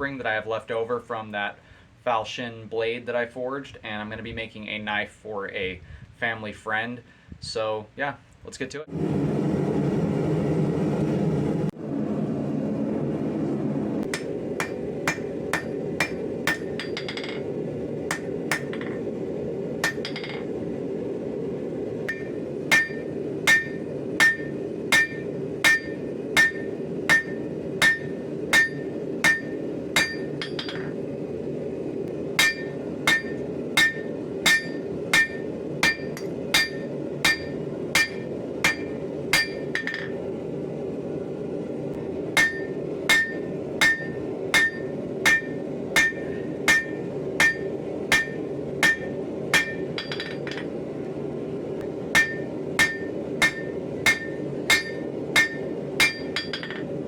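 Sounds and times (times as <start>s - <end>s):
low rumble: 8.9s - 57.0s
hammer striking steel on anvil: 14.1s - 17.5s, 18.1s - 19.1s, 19.8s - 20.5s, 22.1s - 31.0s, 32.4s - 40.2s, 42.4s - 50.7s, 52.1s - 57.0s.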